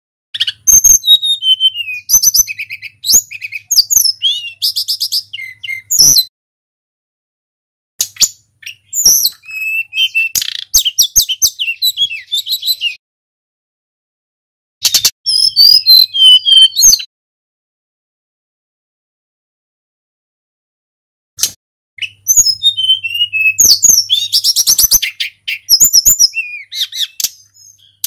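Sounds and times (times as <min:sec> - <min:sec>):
flycatcher singing: 0:00.4 - 0:06.3, 0:08.2 - 0:13.0, 0:14.9 - 0:17.1, 0:22.0 - 0:28.0.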